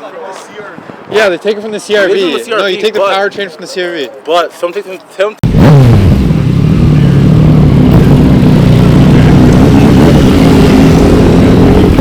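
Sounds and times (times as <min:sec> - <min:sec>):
car engine running: 0:05.4 - 0:12.0.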